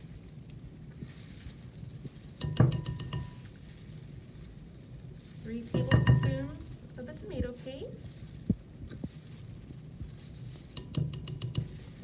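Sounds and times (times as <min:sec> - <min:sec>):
utensil clinking against mixing bowl: 0:02.4 - 0:03.5, 0:05.7 - 0:06.7, 0:10.7 - 0:12.0.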